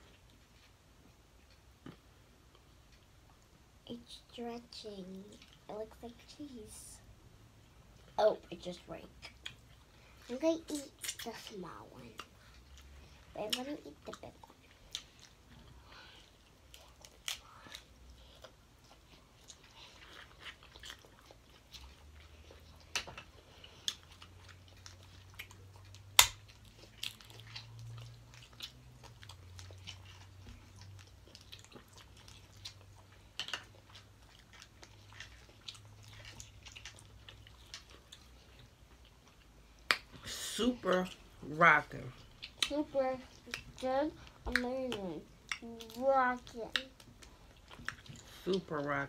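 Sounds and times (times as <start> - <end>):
faint low hum: 0.0 - 49.0
chewing and lip smacks: 9.1 - 41.4, 42.1 - 48.7.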